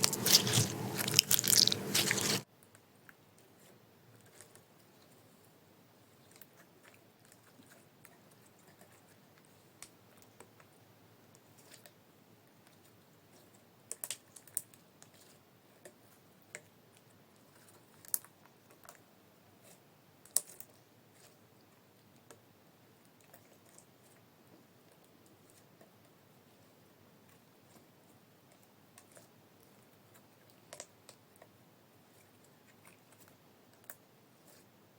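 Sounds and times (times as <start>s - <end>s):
slime clicking and popping: 0.0s - 2.4s.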